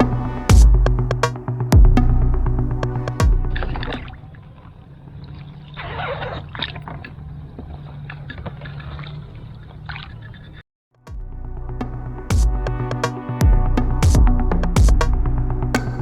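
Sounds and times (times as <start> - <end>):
boat engine rumble: 0.0 - 10.6
water gurgling and trickling: 2.8 - 10.6
rush of water: 3.6 - 10.6.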